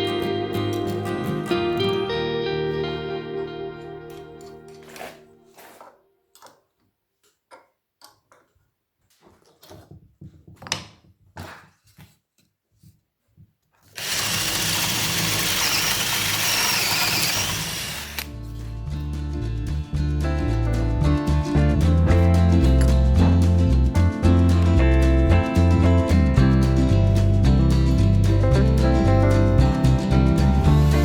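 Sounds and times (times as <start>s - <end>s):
tools clicking and knocking: 5.7s - 11.2s
power tool running: 14.0s - 18.3s.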